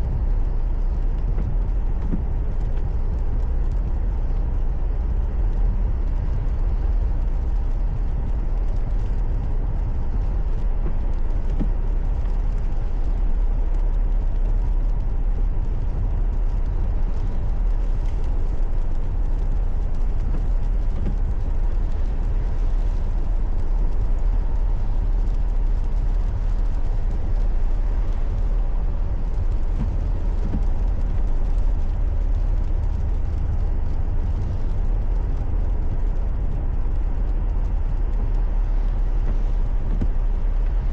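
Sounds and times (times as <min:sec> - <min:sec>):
car driving on road: 0:00.0 - 0:40.9.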